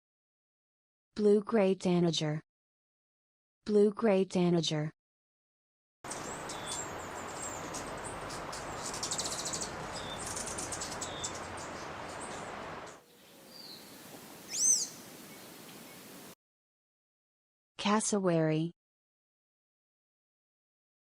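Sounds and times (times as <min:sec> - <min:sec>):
bird squeaky chirps: 0:06.1 - 0:16.1
steady background hiss: 0:06.1 - 0:16.4.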